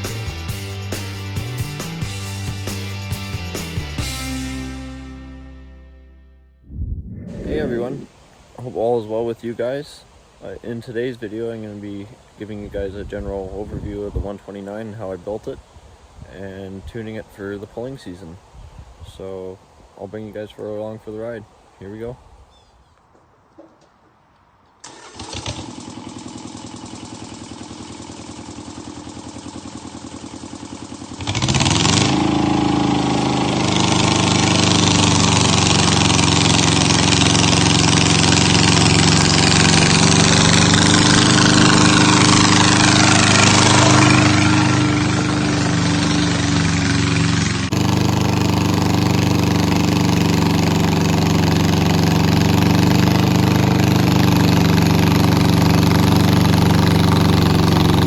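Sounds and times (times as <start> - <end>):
tractor engine revving: 6.7 - 8.2, 24.8 - 58.0.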